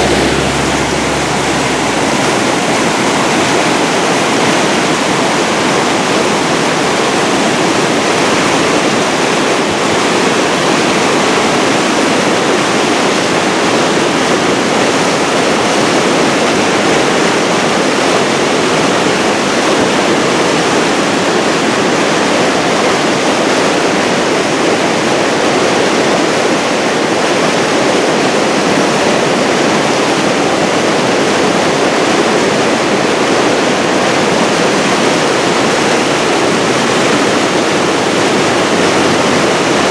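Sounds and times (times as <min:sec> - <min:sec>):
water rushing over dam: 0:20.4 - 0:39.9.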